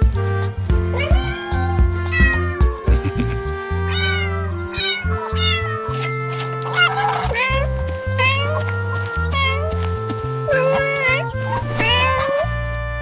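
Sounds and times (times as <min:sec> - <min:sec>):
background music with pulsing bass: 0:00.0 - 0:13.0
cat meowing: 0:00.9 - 0:02.8, 0:03.9 - 0:05.9, 0:06.7 - 0:09.8, 0:10.4 - 0:12.6.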